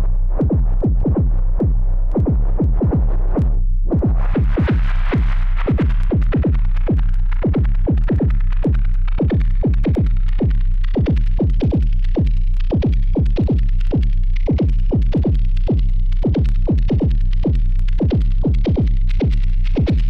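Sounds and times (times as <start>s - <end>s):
synthesized drum hits: 0.0s - 13.6s
deep bass tone: 0.0s - 20.0s.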